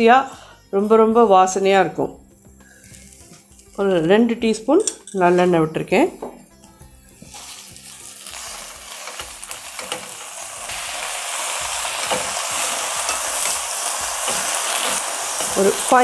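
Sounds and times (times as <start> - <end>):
leaves sizzling in hot oil: 2.4 - 3.9, 7.1 - 16.0.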